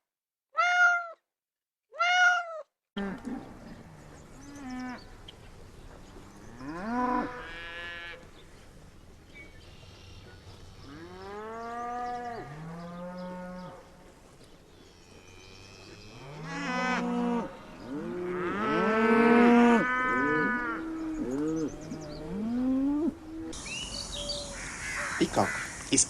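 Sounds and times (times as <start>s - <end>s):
cattle mooing: 6.4s - 8.2s, 15.0s - 23.2s
steady hiss: 23.6s - 26.0s.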